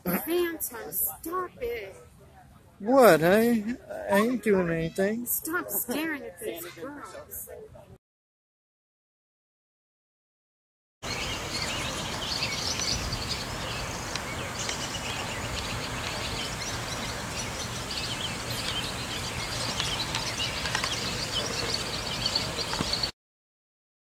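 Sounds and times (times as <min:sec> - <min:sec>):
birds chirping: 0:11.0 - 0:23.1.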